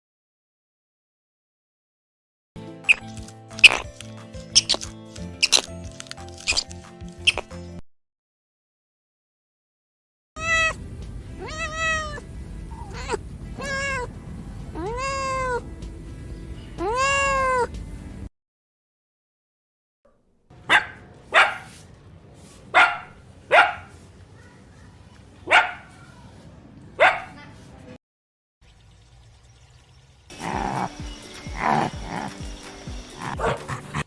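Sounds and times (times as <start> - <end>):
cat meowing: 10.4 - 10.8, 11.4 - 14.1, 14.7 - 15.6, 16.8 - 17.7.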